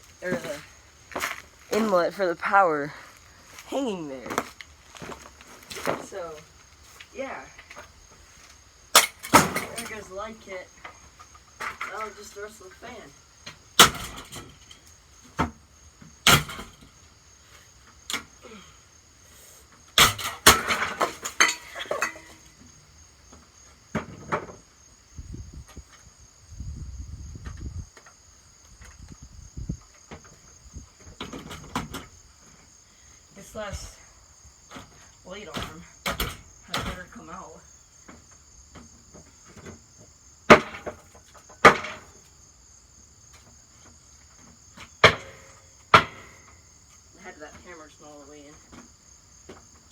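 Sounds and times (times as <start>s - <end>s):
crickets chirping: 0.0s - 49.9s
parts rattling: 20.0s - 22.5s.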